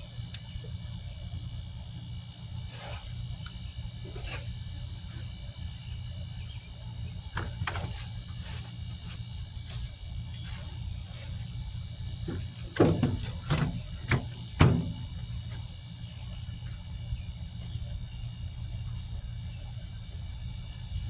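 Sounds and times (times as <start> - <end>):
steady low rumble: 0.0 - 21.0
knocks and rustles of garden material: 7.3 - 16.4
loud sharp thumps: 12.3 - 15.3.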